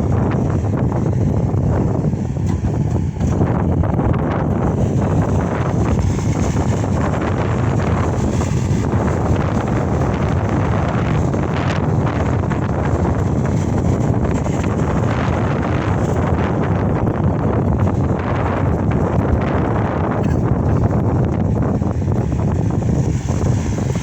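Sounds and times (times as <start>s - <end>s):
diesel engine running: 0.0s - 24.0s
wind buffeting microphone: 0.0s - 24.0s.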